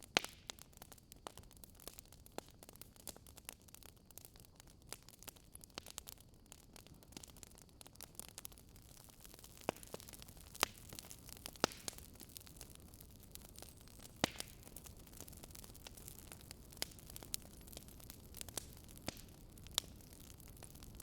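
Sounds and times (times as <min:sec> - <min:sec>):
fireplace fire crackling: 0:00.0 - 0:21.0.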